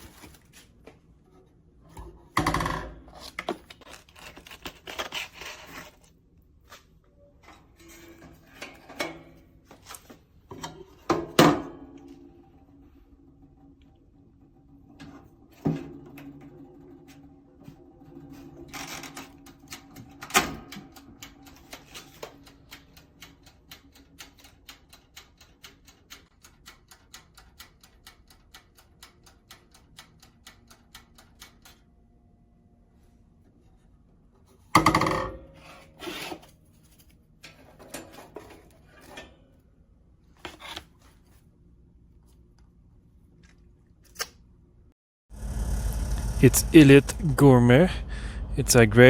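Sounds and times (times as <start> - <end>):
mechanical timer ticking: 22.3 - 31.6.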